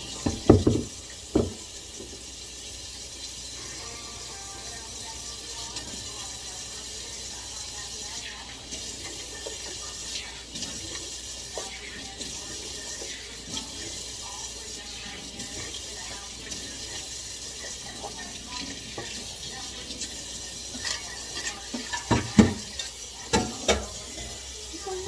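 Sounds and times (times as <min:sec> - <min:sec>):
dishes clattering: 0:00.0 - 0:02.2, 0:20.0 - 0:24.6
tap water running into sink: 0:00.0 - 0:25.0.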